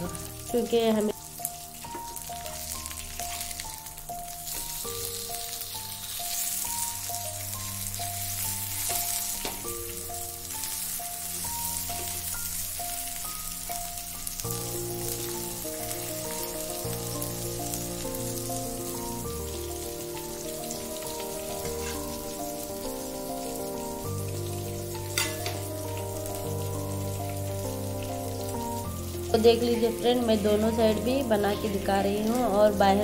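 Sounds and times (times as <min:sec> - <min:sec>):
food frying in hot oil: 0:00.0 - 0:33.0
slow instrumental chords: 0:06.6 - 0:33.0.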